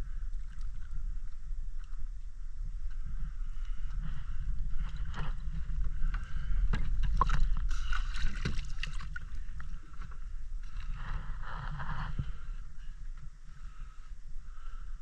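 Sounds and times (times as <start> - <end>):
steady low rumble: 0.0 - 15.0
sea water sloshing and splashing: 4.6 - 12.3.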